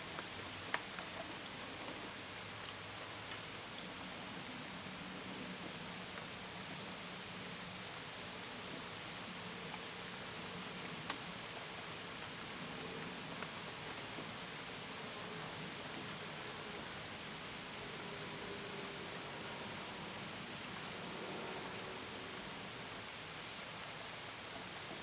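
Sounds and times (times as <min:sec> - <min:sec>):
steady rain: 0:00.0 - 0:25.0
crickets chirping: 0:11.2 - 0:12.3, 0:14.6 - 0:25.0.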